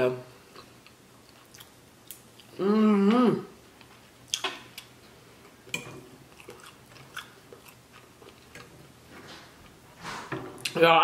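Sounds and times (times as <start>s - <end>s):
wet chewing: 6.3s - 8.8s.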